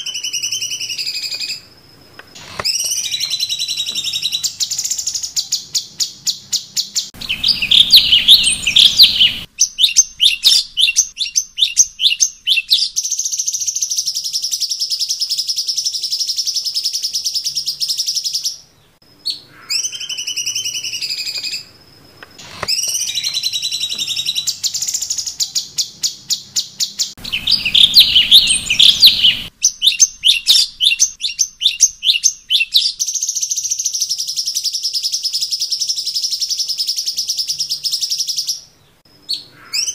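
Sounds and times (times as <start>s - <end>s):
whistled bird notes: 0.0s - 1.7s, 2.3s - 21.8s, 22.4s - 39.9s
bird song chatter and trills: 0.0s - 39.9s.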